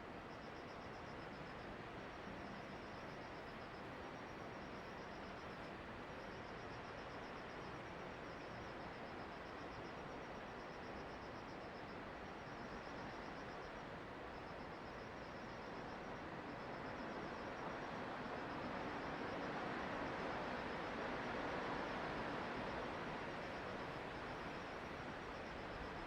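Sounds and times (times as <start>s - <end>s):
rushing wind and rain: 16.1s - 26.0s.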